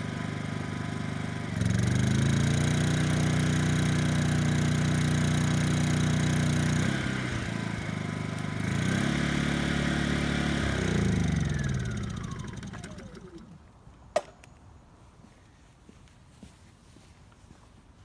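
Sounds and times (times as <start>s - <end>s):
generator running: 0.0s - 13.7s.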